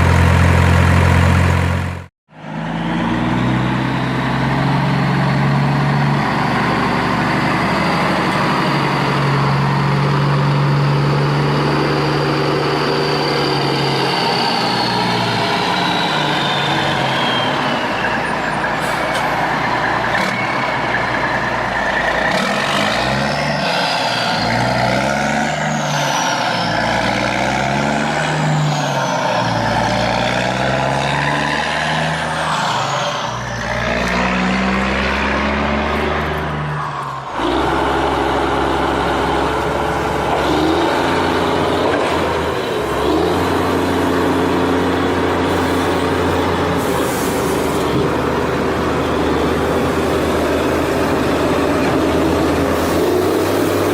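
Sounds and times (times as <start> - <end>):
heavy truck engine revving: 0.0 - 53.9.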